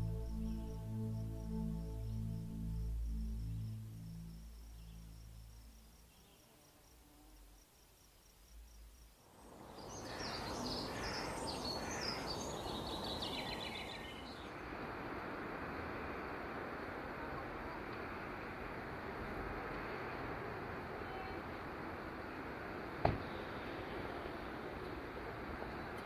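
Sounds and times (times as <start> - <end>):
background hiss: 0.0 - 26.0
birds chirping: 9.6 - 14.6.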